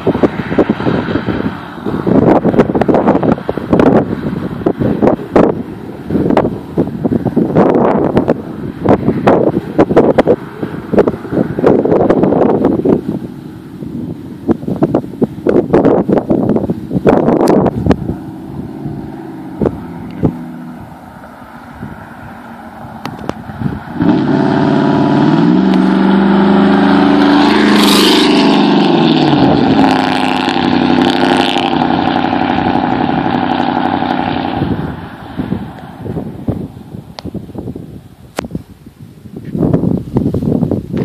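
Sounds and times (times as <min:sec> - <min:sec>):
engine revving: 0:17.1 - 0:36.8.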